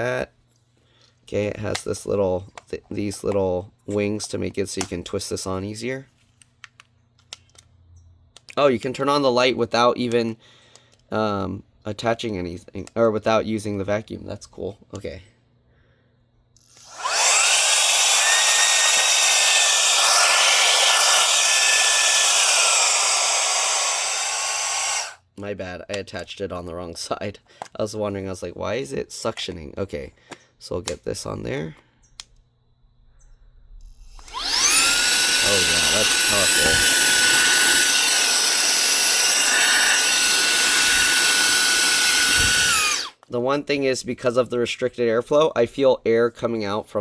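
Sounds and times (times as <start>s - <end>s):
handheld vacuum motor whining: 16.6s - 25.2s, 33.8s - 43.2s.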